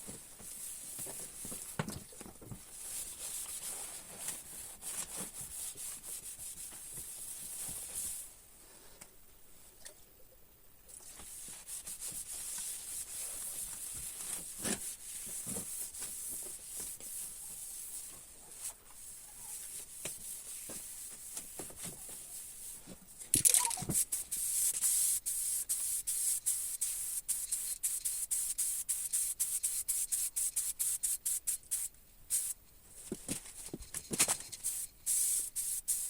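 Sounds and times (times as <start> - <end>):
paint spraying hiss: 23.9 - 32.6, 34.5 - 36.0.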